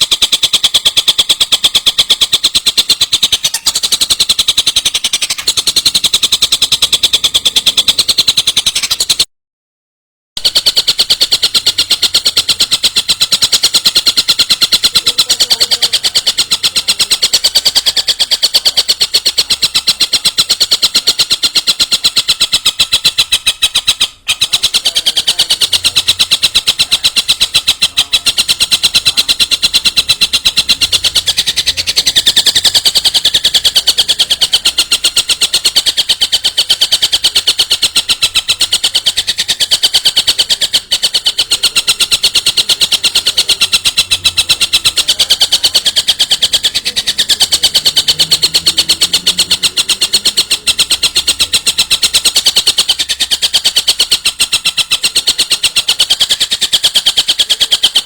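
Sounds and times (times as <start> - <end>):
bird rattling trill: 0.0 - 9.3, 10.4 - 58.0.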